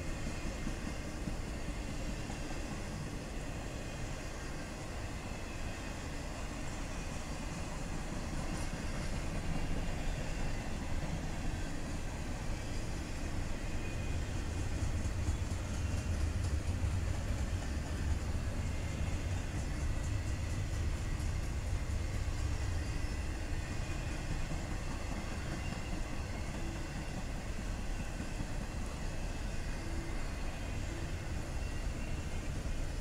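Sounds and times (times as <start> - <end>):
freight train rolling past: 0.0 - 33.0
steel wheels rumbling on rails: 0.0 - 33.0.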